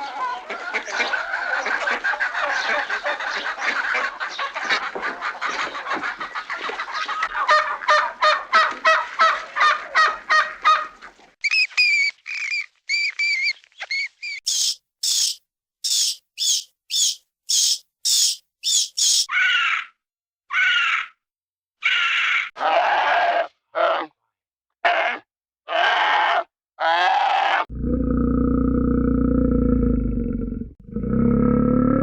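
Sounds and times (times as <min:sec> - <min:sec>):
chickens clucking: 0:00.0 - 0:11.2
short high bird calls: 0:11.4 - 0:19.9.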